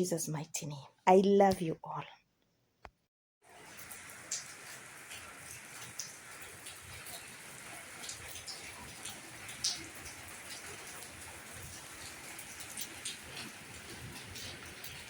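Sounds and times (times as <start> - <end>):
heavy rain falling: 3.5 - 15.0.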